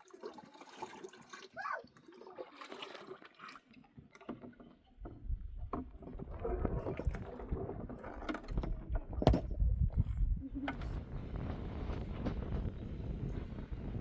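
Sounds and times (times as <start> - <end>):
liquid sloshing and splashing: 0.0 - 10.3.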